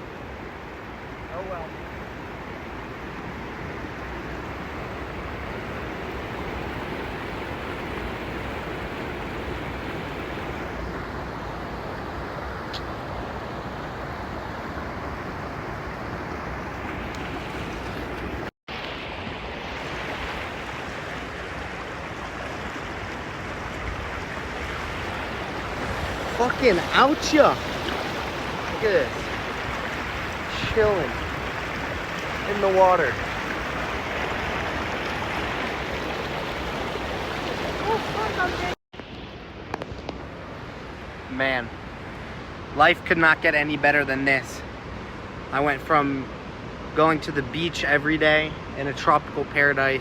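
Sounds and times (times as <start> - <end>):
waterfall rushing over rocks: 18.0 - 39.3.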